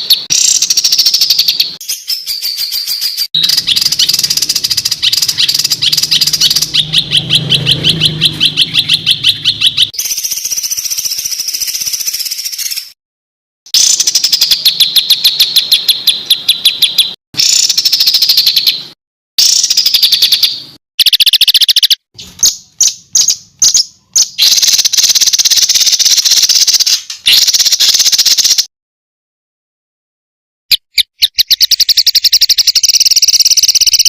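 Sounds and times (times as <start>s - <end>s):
songbird rattling trills: 0.0s - 13.0s, 19.4s - 28.7s, 30.9s - 34.0s.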